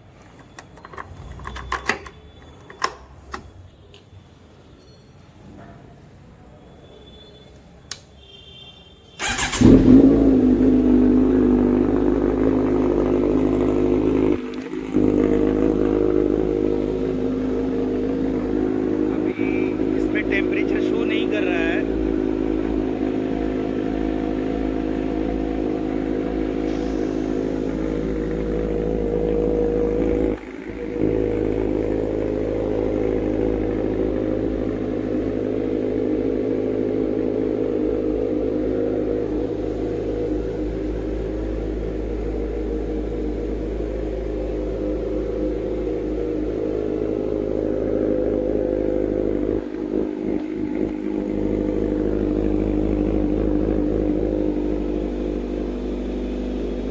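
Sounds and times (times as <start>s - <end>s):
motorcycle engine idling: 9.2s - 56.9s.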